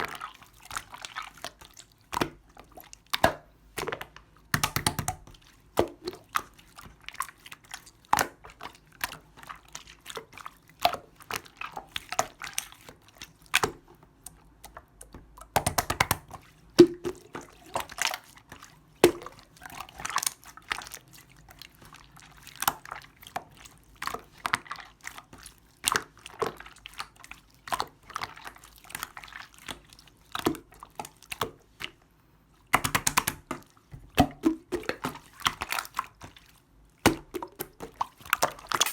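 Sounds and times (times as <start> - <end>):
wet clicks and air pops: 4.6 - 5.3, 14.7 - 17.2, 32.8 - 33.6, 38.4 - 38.9
slime being squished: 32.8 - 38.9.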